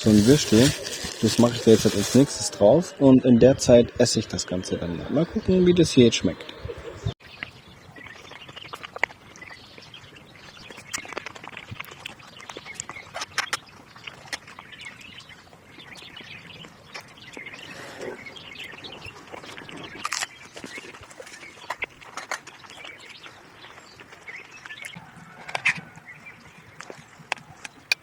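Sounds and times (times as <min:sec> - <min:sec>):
birds chirping: 0:00.0 - 0:28.0
sharp clicks and crackles: 0:10.5 - 0:15.3, 0:18.6 - 0:26.1.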